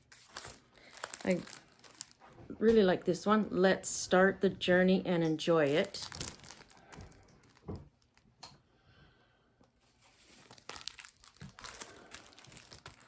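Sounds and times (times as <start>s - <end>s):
packaging crinkling and rustling: 0.0s - 3.1s, 5.5s - 8.6s, 9.8s - 13.0s.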